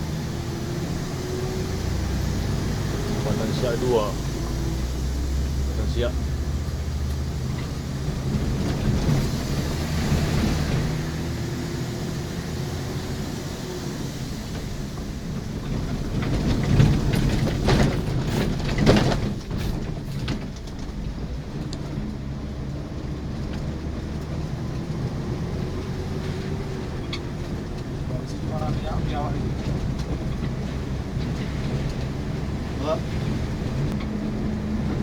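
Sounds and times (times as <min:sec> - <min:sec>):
bus engine and road drone: 0:00.0 - 0:35.0
knocks and rattles: 0:15.3 - 0:22.3.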